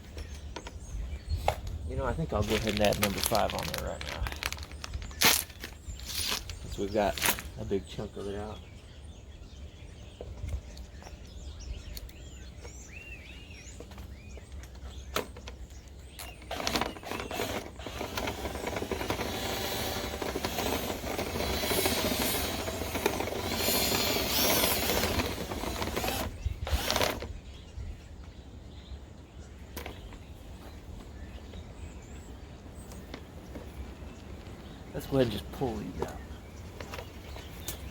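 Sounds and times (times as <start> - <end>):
brush scraping and rattling in duct: 1.4 - 8.2, 16.3 - 27.2.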